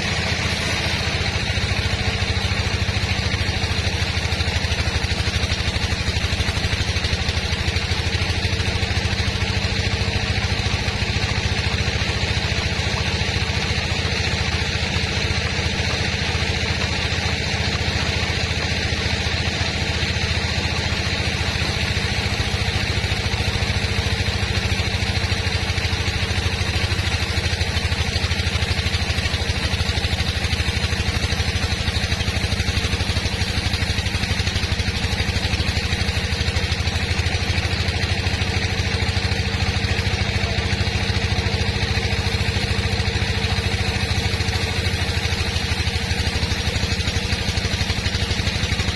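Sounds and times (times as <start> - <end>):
sawmill machinery drone: 0.0 - 48.9
thin steady whine: 0.0 - 48.9.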